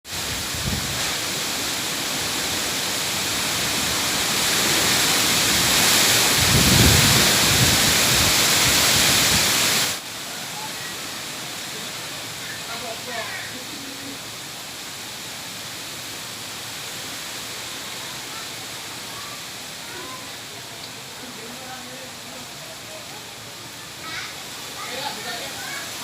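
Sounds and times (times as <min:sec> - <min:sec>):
gusty wind buffeting microphone: 0:00.1 - 0:01.4, 0:03.7 - 0:10.0.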